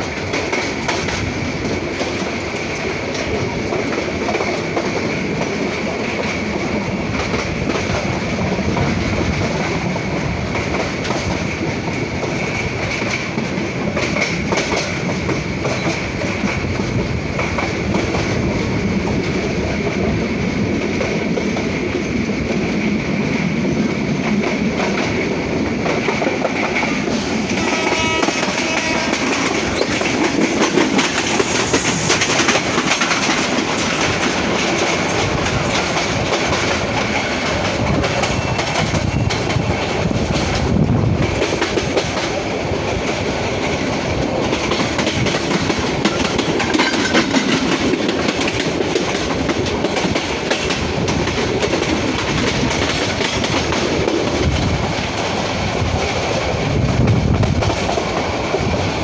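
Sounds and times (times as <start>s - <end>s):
rush of wind: 0.0s - 59.0s
train wheels clattering: 0.0s - 59.0s.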